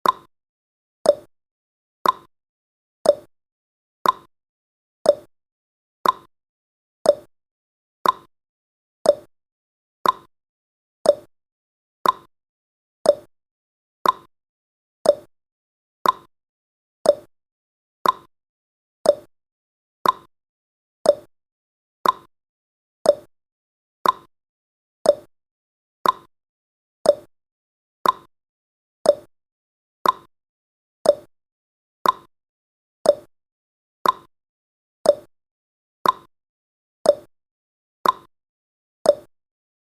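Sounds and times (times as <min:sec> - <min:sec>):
timer ticking: 0:00.0 - 0:00.3, 0:01.1 - 0:01.3, 0:02.0 - 0:02.3, 0:03.0 - 0:03.3, 0:04.0 - 0:04.3, 0:05.1 - 0:05.3, 0:06.0 - 0:06.3, 0:07.1 - 0:07.3, 0:08.0 - 0:08.3, 0:09.0 - 0:09.3, 0:10.0 - 0:10.3, 0:11.0 - 0:11.3, 0:12.0 - 0:12.3, 0:13.0 - 0:13.3, 0:14.0 - 0:14.3, 0:15.0 - 0:15.3, 0:16.0 - 0:16.3, 0:17.0 - 0:17.3, 0:18.0 - 0:18.3, 0:19.0 - 0:19.3, 0:20.0 - 0:20.3, 0:21.0 - 0:21.3, 0:22.0 - 0:22.3, 0:23.0 - 0:23.3, 0:24.0 - 0:24.3, 0:25.0 - 0:25.3, 0:26.0 - 0:26.3, 0:27.0 - 0:27.3, 0:28.0 - 0:28.3, 0:29.0 - 0:29.3, 0:30.0 - 0:30.3, 0:31.0 - 0:31.3, 0:32.0 - 0:32.3, 0:33.0 - 0:33.3, 0:34.0 - 0:34.3, 0:35.0 - 0:35.3, 0:36.0 - 0:36.3, 0:37.1 - 0:37.3, 0:38.0 - 0:38.3, 0:39.1 - 0:39.3.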